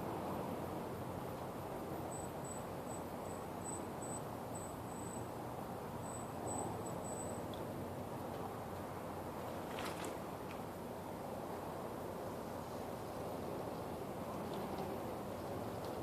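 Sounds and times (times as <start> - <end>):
insect chirping: 2.0 - 7.5.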